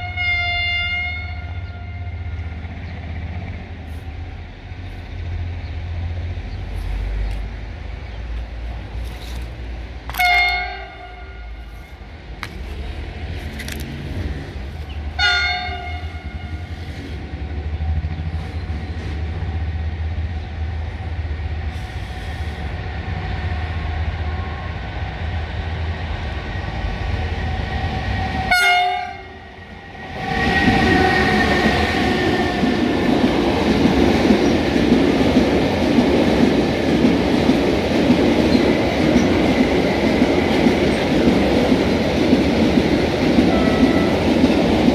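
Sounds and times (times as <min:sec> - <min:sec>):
train horn blasts: 0:00.0 - 0:02.4, 0:10.1 - 0:11.9, 0:15.2 - 0:16.8, 0:28.5 - 0:29.4, 0:43.5 - 0:44.3
electric locomotive humming: 0:00.0 - 0:44.9
train wheels rumbling on rails: 0:00.0 - 0:44.9.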